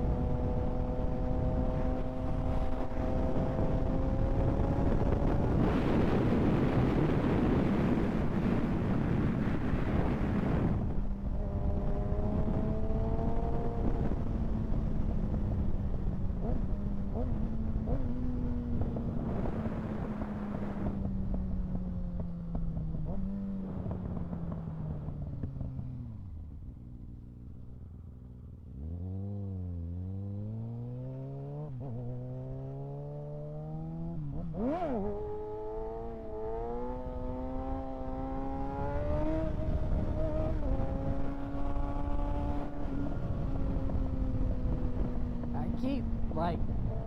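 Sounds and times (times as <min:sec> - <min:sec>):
wind over microphone: 0:00.0 - 0:26.2, 0:34.1 - 0:47.0
motorcycle engine revving: 0:27.2 - 0:47.0.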